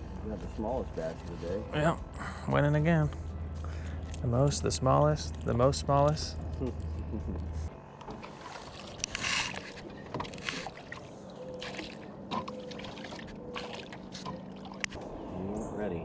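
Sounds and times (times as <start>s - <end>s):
low hum: 0.0s - 16.0s
water splashing against boat: 8.0s - 15.0s.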